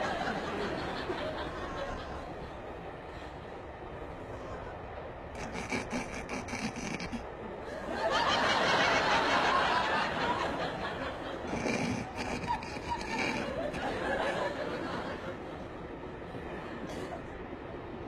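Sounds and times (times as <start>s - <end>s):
audience laughter: 0.0s - 2.8s, 5.4s - 15.9s.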